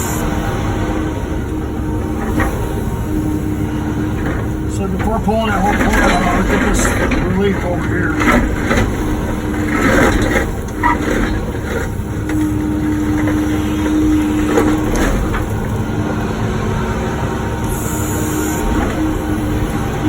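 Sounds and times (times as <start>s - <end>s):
excavator engine and hydraulics: 0.0s - 20.0s
bucket knocking and scraping: 1.4s - 15.9s.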